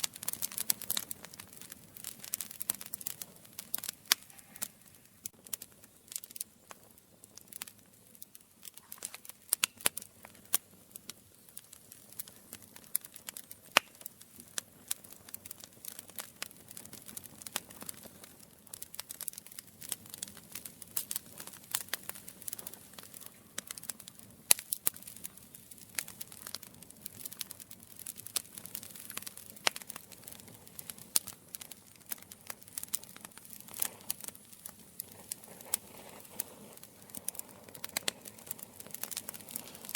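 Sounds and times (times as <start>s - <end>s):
campfire crackling and popping: 0.0s - 39.9s
soft hiss of flame: 0.0s - 39.9s.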